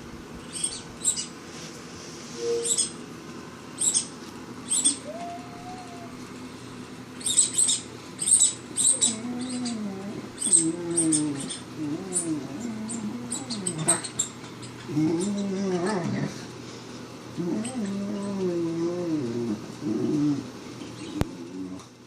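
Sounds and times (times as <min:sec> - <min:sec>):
puppy squeaking: 0:02.4 - 0:03.0, 0:07.2 - 0:15.9
puppy whining and grumbling: 0:04.7 - 0:06.3, 0:07.2 - 0:16.5, 0:17.3 - 0:22.0.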